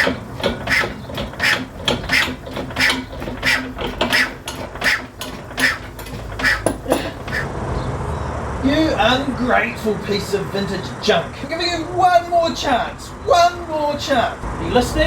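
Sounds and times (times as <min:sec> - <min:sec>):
engine turned over by hand: 0:00.0 - 0:07.9.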